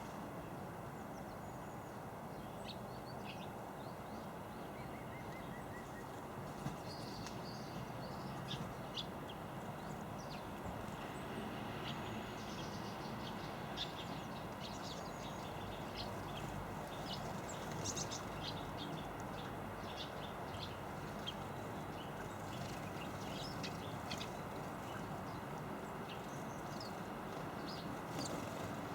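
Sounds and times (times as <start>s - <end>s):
low background noise: 0.0s - 28.9s
small birds chirping: 11.8s - 28.9s.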